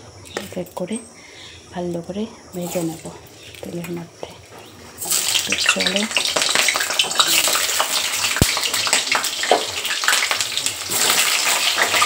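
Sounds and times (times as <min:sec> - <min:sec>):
potatoes sizzling in hot oil: 0:02.6 - 0:03.7, 0:05.0 - 0:12.0.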